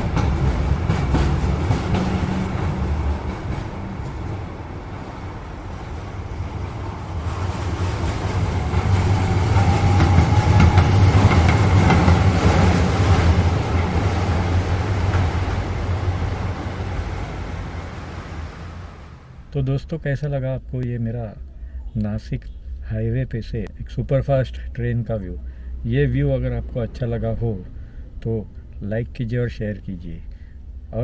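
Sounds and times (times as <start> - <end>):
train wheels rumbling on rails: 0.0 - 19.6.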